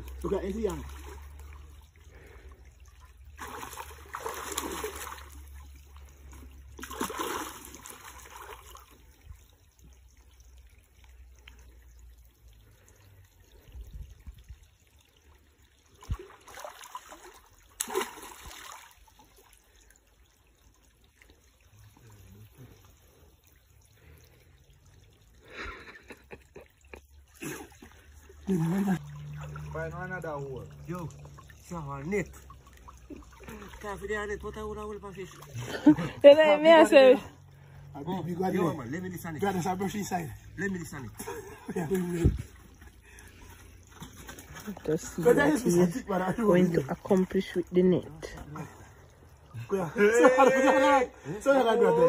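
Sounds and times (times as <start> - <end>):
stream water trickling: 0.0 - 52.0
hands splashing in water: 3.4 - 5.6, 6.8 - 8.9, 16.0 - 19.0.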